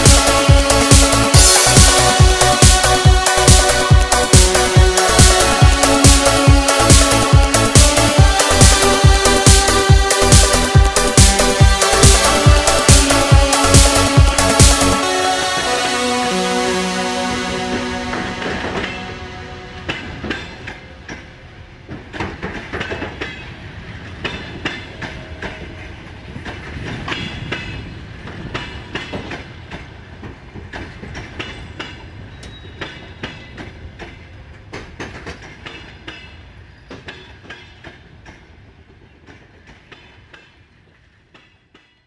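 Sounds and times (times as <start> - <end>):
train rumble: 0.0 - 41.9
train wheels clicking over rail joints: 20.3 - 42.0.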